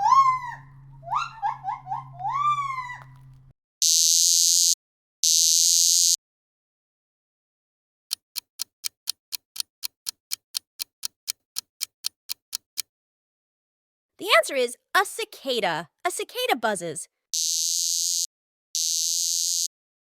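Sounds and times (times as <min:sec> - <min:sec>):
clock ticking: 0:08.1 - 0:12.9
cicada buzzing: 0:17.4 - 0:19.7.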